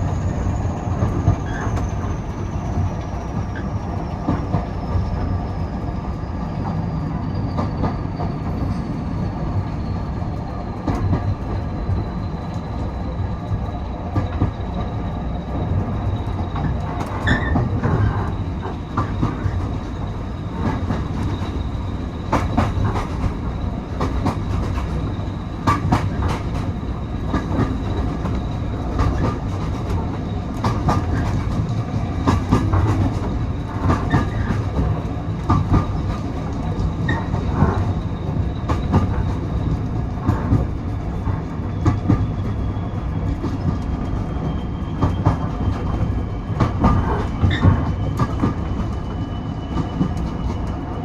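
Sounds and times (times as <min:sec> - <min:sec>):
train rumbling on track: 0:00.0 - 0:51.0
wheels clicking over rail joints: 0:10.3 - 0:49.1.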